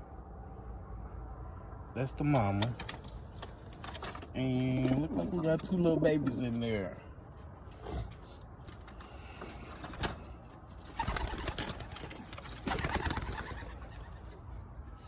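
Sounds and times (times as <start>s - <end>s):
pigeons flurrying: 2.4s - 6.4s, 8.4s - 14.7s.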